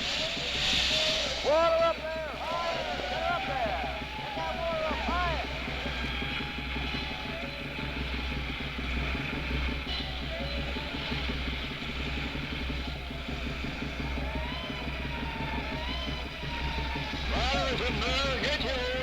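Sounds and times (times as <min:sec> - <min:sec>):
faint distant shouting: 0:00.0 - 0:11.7
constant hiss: 0:00.0 - 0:16.4
fire engine motor running: 0:00.0 - 0:19.0.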